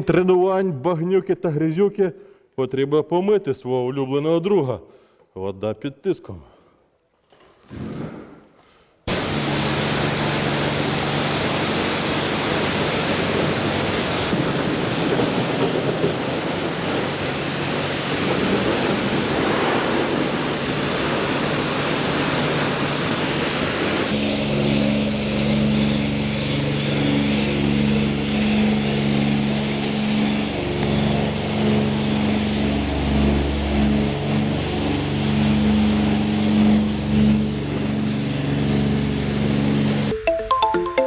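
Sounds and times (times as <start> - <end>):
pressure washer spraying water: 9.1 - 40.1
pump motor hum: 9.1 - 40.1.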